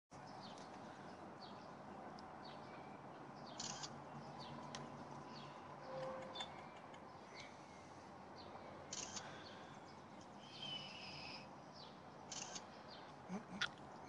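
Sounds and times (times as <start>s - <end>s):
faint bird chirps: 10.4s - 13.7s.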